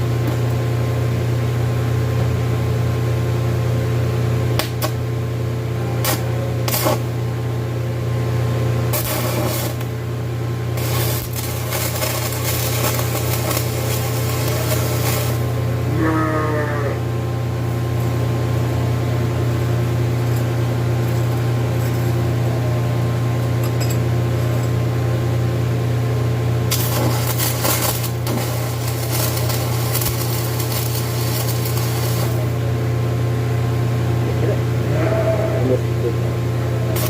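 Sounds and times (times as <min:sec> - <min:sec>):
arc welder humming: 0:00.0 - 0:37.0
crackle of welding arc: 0:06.0 - 0:07.1, 0:08.9 - 0:10.0, 0:10.7 - 0:15.7, 0:26.7 - 0:32.6.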